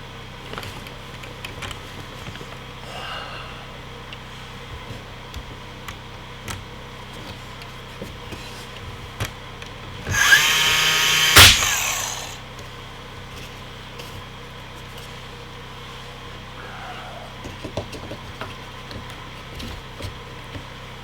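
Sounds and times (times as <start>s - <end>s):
power tool motor: 10.1s - 12.4s.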